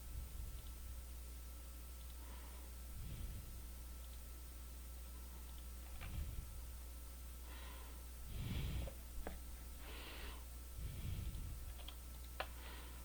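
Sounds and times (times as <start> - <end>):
computer mouse clicks: 0.5 - 0.8, 2.0 - 2.2, 4.0 - 4.3, 5.4 - 6.1, 11.3 - 12.6
person breathing: 2.2 - 3.8, 5.9 - 6.7, 7.4 - 13.0.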